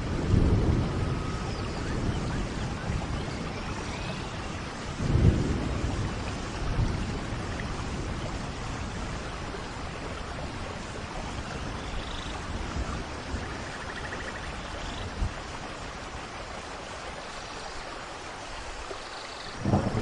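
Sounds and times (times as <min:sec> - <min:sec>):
low thunder rumble: 0:00.0 - 0:16.1, 0:19.6 - 0:20.0
heavy rain falling: 0:00.0 - 0:20.0.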